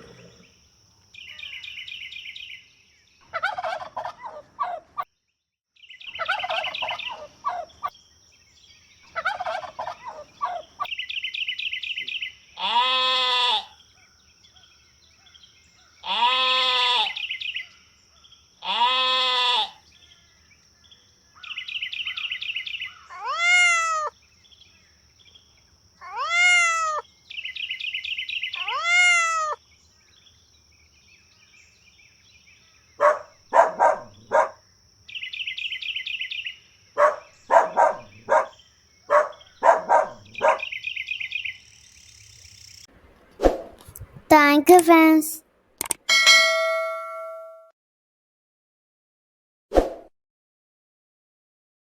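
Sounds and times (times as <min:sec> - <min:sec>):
turkeys gobbling: 0:03.4 - 0:04.8, 0:09.2 - 0:10.0.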